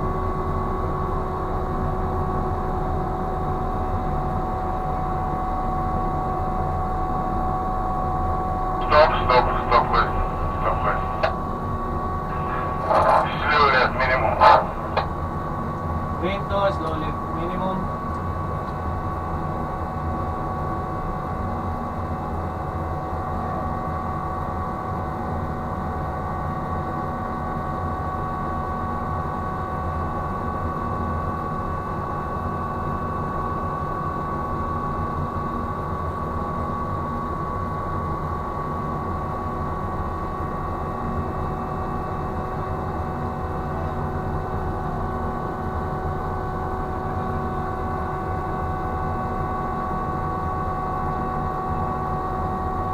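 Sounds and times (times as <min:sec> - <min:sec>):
winch machinery low hum: 0:00.0 - 0:25.2
winch high whine: 0:08.8 - 0:17.6.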